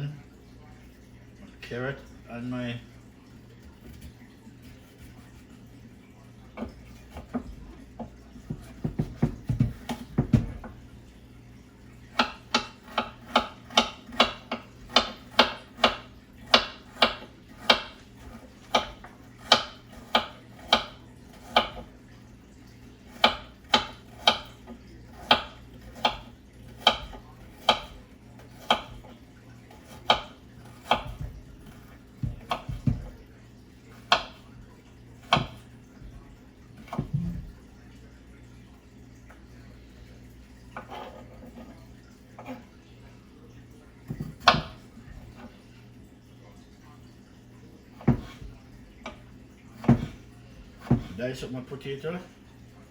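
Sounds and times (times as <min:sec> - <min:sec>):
knife chopping carrot on board: 0:06.6 - 0:10.8, 0:12.1 - 0:21.9, 0:23.1 - 0:29.1, 0:29.8 - 0:33.2, 0:34.0 - 0:34.4, 0:35.2 - 0:36.2, 0:36.8 - 0:37.5, 0:44.1 - 0:45.5, 0:48.0 - 0:49.2, 0:49.8 - 0:51.2.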